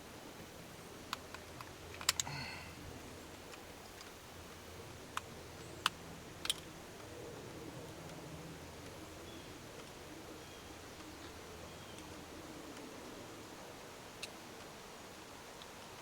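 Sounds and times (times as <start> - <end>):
metallic clicks of hand tools: 1.1 - 2.3.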